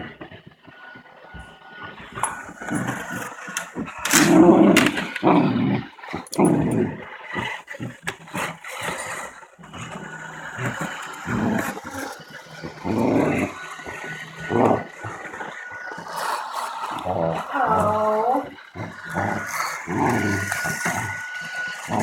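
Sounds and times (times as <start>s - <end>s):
robot vacuum motor hum: 0.0s - 22.0s
dog growling and barking: 2.2s - 22.0s.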